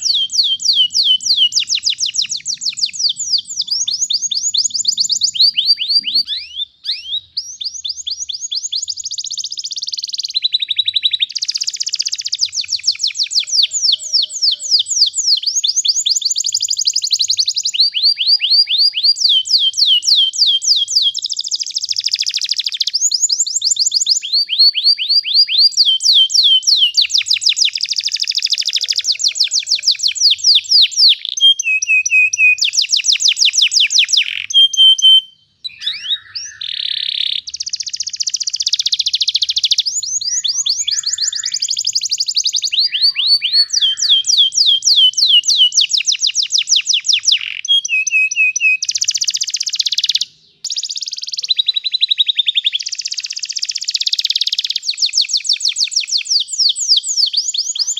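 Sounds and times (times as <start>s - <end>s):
canary singing trills: 0.0s - 57.9s.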